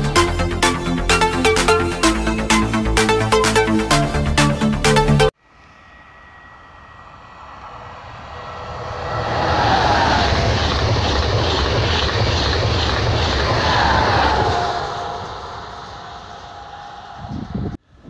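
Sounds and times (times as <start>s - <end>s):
high-speed train passing: 5.4s - 17.8s
rush of wheels on rail: 6.2s - 17.8s.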